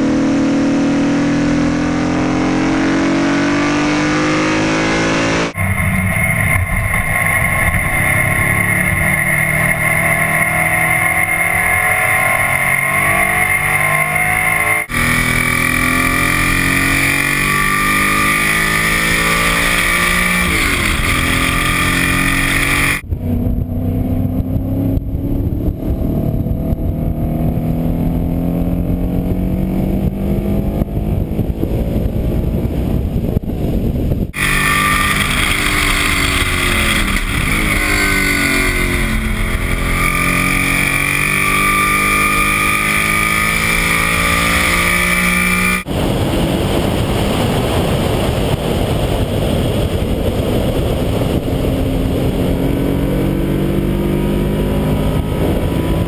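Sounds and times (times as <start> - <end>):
race car engine under load: 2.5 - 27.0, 28.0 - 56.0.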